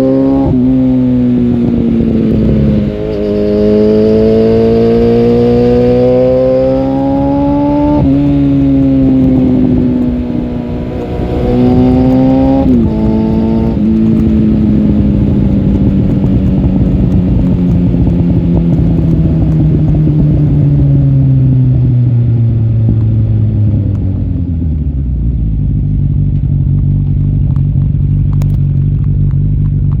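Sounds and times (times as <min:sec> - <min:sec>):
motorcycle engine changing gears: 0:00.0 - 0:30.0.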